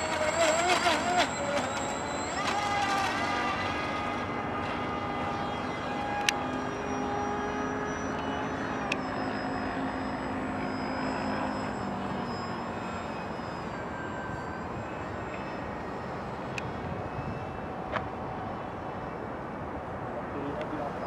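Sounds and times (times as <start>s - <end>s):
electric motor whining: 0.0s - 19.2s
wind noise: 14.2s - 20.0s.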